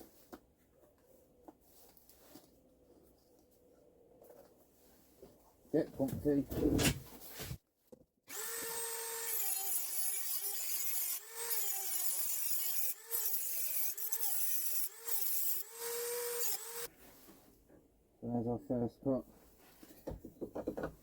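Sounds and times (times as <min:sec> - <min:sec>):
rotary tool cutting metal: 0:08.3 - 0:16.9.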